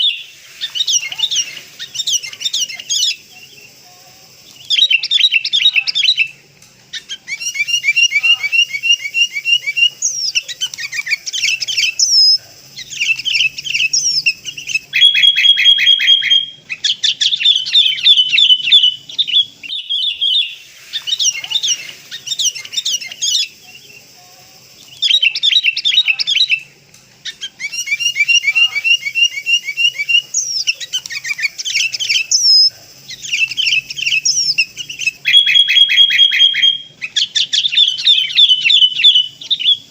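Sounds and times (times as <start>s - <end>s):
bird chattering chirps: 0.0s - 39.9s
rising whistled bird note: 15.0s - 16.5s.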